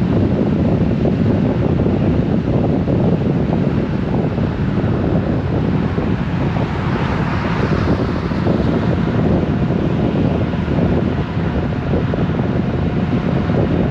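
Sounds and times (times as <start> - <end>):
wind buffeting microphone: 0.0 - 13.9.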